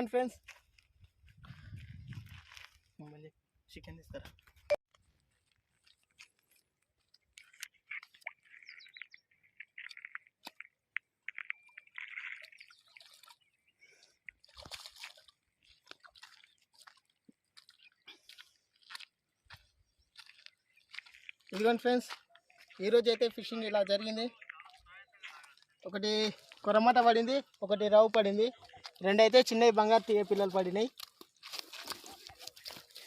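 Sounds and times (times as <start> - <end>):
small birds chirping: 7.2 - 14.5, 15.6 - 21.6.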